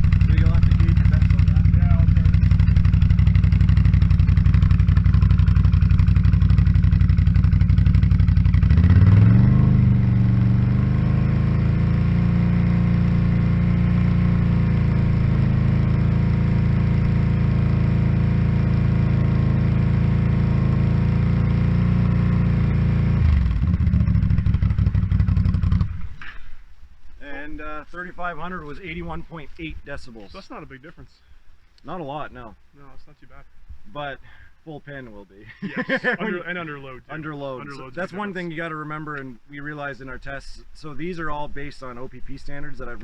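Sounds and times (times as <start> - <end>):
atv engine idling and revving: 0.0 - 26.4.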